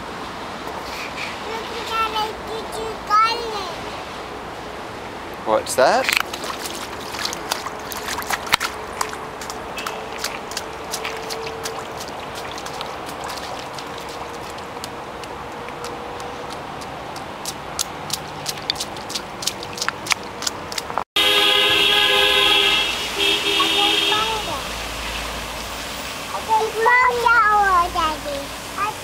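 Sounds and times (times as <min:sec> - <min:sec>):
raindrops tapping close by: 0:06.0 - 0:21.0
steady rain falling: 0:21.7 - 0:29.0.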